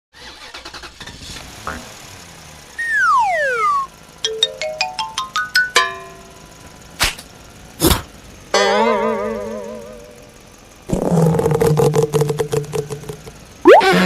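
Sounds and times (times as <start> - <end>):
slide whistle glide: 2.8 - 3.9, 13.6 - 14.0
warbling tone: 2.8 - 5.8, 11.1 - 14.0
short notes climbing in pitch: 2.8 - 6.3, 12.0 - 14.0.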